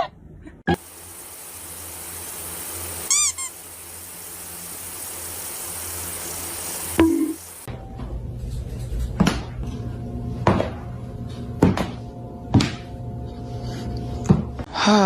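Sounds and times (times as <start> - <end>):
steady background hiss: 0.8 - 7.7.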